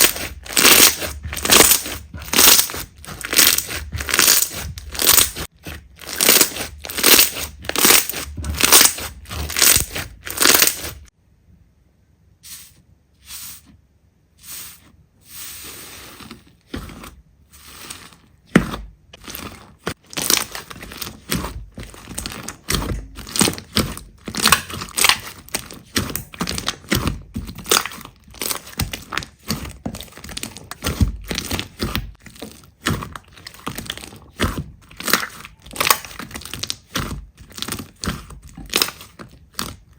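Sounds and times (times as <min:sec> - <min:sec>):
slime crackling and popping: 0:00.0 - 0:11.1, 0:19.2 - 0:39.9.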